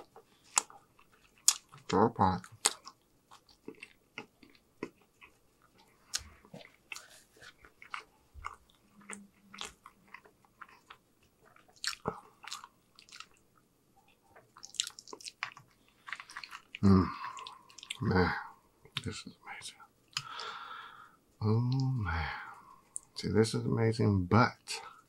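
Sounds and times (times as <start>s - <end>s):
person chewing with wet smacks: 0.0s - 18.1s.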